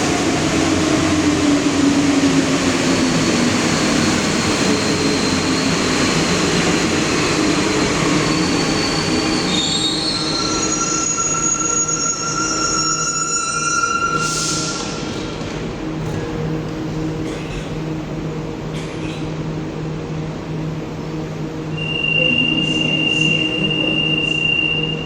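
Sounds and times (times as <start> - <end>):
metro train rumbling: 0.0 - 25.0
wheels and brakes squealing: 8.1 - 15.0.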